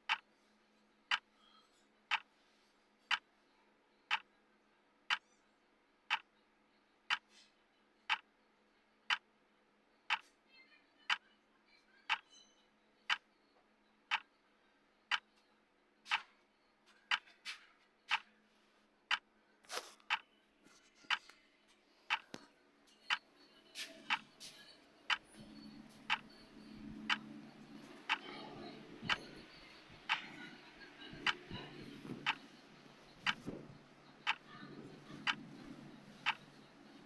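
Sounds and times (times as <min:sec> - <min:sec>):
clock ticking: 0:00.0 - 0:00.2, 0:02.1 - 0:02.3, 0:10.1 - 0:10.3, 0:14.1 - 0:14.3, 0:16.1 - 0:16.3, 0:17.1 - 0:17.3, 0:18.1 - 0:18.3, 0:22.1 - 0:22.4, 0:23.0 - 0:23.2, 0:24.1 - 0:24.4, 0:25.1 - 0:36.8
faint clicks: 0:34.2 - 0:34.6.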